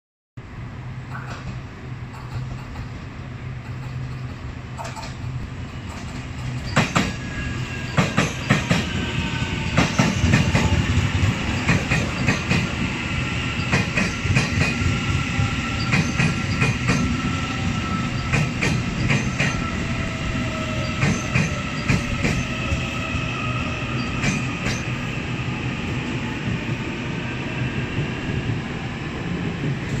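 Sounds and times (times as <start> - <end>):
train rumble: 0.4 - 30.0.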